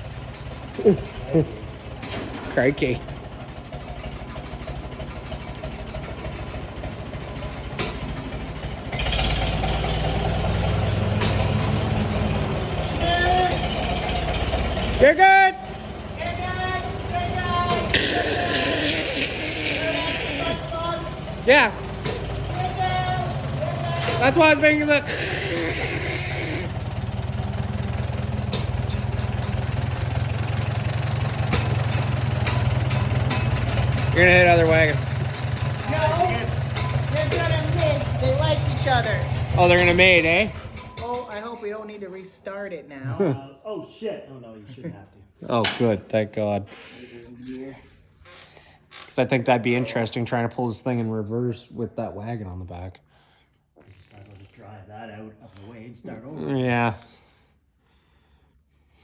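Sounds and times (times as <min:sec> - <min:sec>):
farm machinery engine running: 0:00.0 - 0:41.4.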